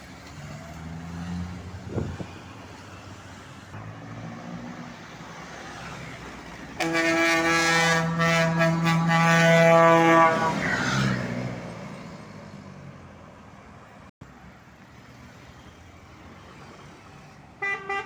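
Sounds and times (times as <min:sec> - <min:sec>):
truck engine noise: 0:00.0 - 0:18.0
truck horn blast: 0:06.8 - 0:11.2, 0:17.6 - 0:18.0.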